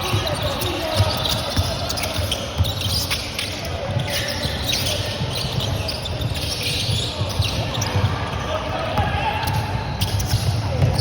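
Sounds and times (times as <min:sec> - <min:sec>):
crowded hall background: 0:00.0 - 0:11.0
basketball bouncing: 0:09.0 - 0:11.0.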